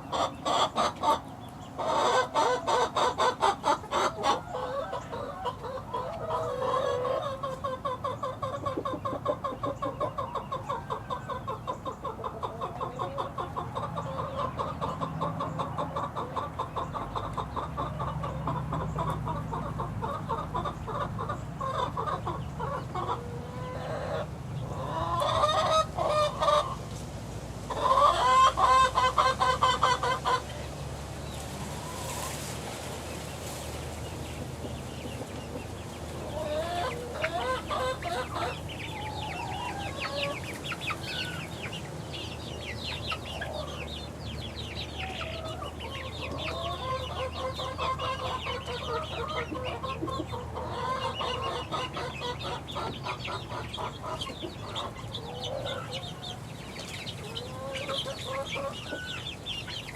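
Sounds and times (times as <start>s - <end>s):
chickens peeping and clucking: 0.0s - 59.9s.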